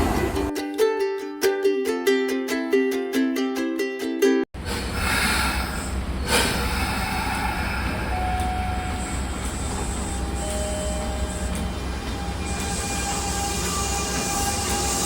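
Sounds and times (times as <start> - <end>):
train rumbling: 0.0 - 0.5, 4.6 - 15.0.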